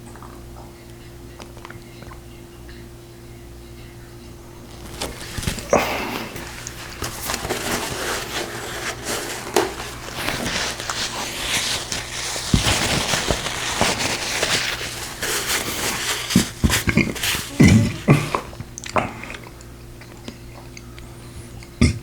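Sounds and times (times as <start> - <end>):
crackly chewing: 4.5 - 22.0
rustling: 4.6 - 18.5.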